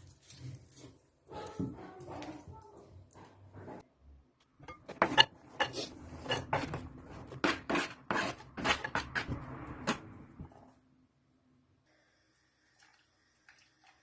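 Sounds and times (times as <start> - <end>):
kitchen utensils clattering: 4.6 - 9.4.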